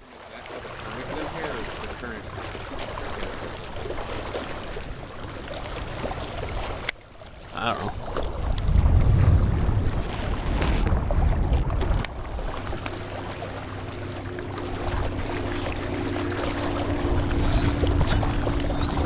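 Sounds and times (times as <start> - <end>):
wind buffeting microphone: 7.9 - 19.0.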